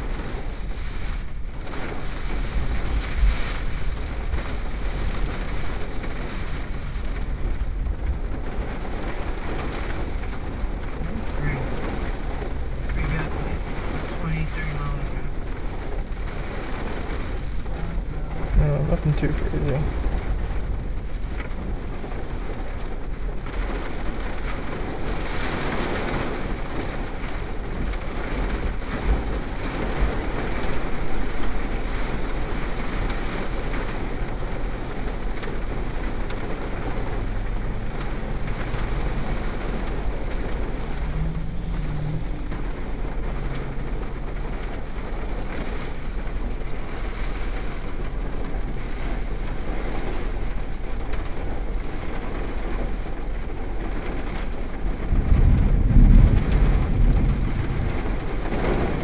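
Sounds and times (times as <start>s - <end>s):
heavy rain on car roof: 0.0s - 59.0s.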